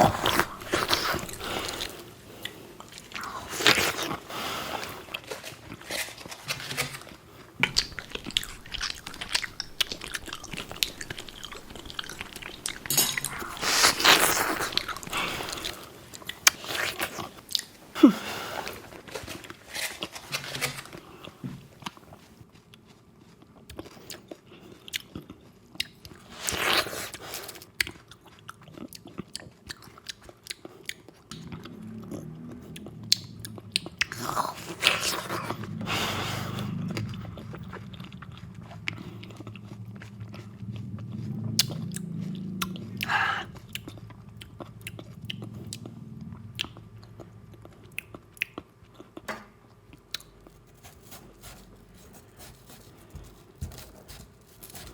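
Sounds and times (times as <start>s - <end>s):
wet chewing and mouth clicks: 0.0s - 17.9s, 18.5s - 54.9s
slurping: 0.0s - 20.7s, 31.4s - 44.3s
low steady hum: 0.0s - 22.4s, 30.7s - 54.9s.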